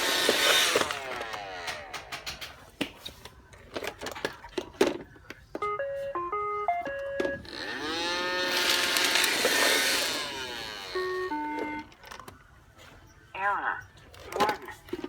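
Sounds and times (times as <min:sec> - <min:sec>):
robot vacuum motor whirring: 0:00.0 - 0:02.2, 0:07.4 - 0:11.9
electronic beep tune: 0:05.6 - 0:07.4.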